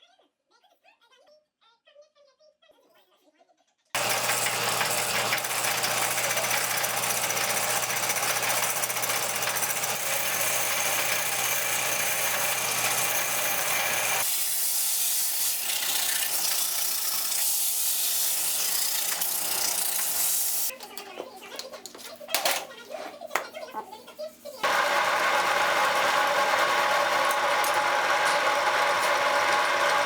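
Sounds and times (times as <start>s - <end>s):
power tool working metal: 4.0s - 20.7s, 24.6s - 30.0s.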